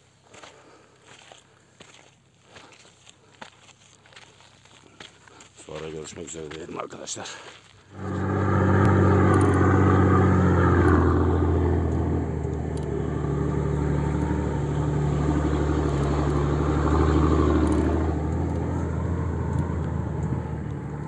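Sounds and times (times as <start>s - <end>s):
car engine under load: 7.9s - 21.0s.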